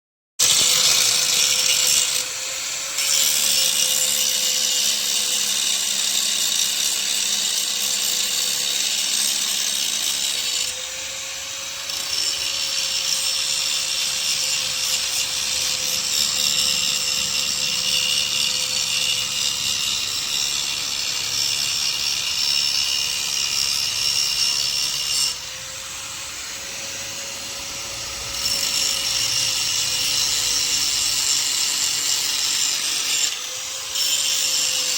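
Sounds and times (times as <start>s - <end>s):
angle grinder motor whine: 0.4s - 34.9s
grinding disc cutting metal: 0.4s - 34.9s.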